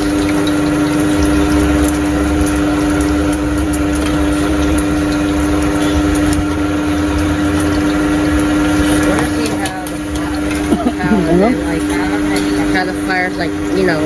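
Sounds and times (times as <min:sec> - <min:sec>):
constant hiss: 0:00.0 - 0:14.0
machine hum: 0:00.0 - 0:14.0.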